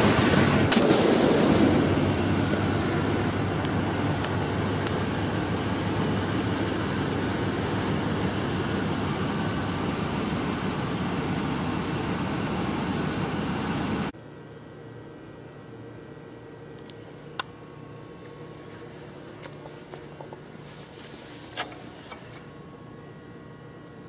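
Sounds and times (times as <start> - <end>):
car engine idling: 0.0 - 14.1.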